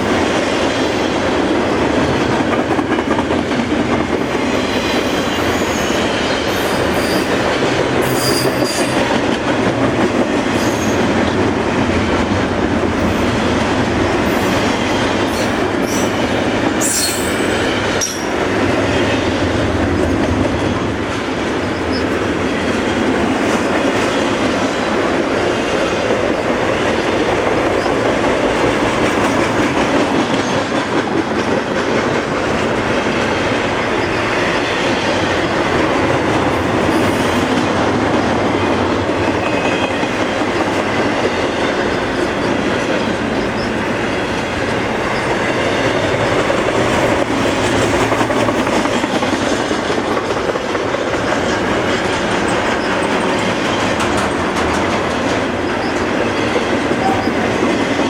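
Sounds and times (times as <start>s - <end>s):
freight train rumbling past: 0.0s - 58.0s
wheels clacking over track: 17.9s - 58.0s.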